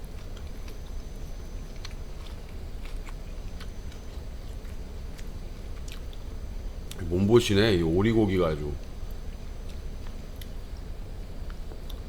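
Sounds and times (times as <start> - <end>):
person chewing: 0.1 - 6.2.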